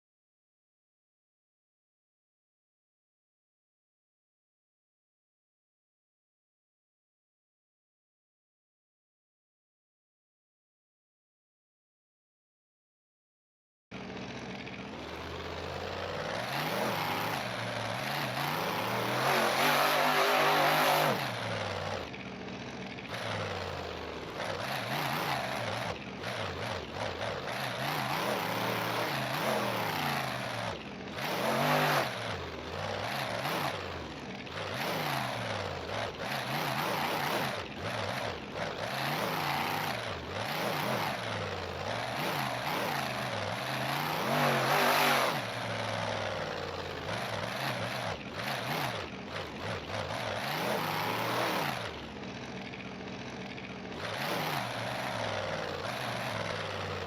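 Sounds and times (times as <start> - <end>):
monster truck engine revving: 14.0 - 57.0.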